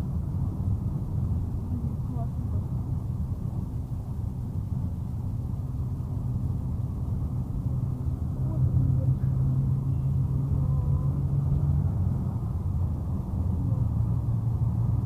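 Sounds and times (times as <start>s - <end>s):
engine and tyre drone inside car: 0.0s - 15.0s.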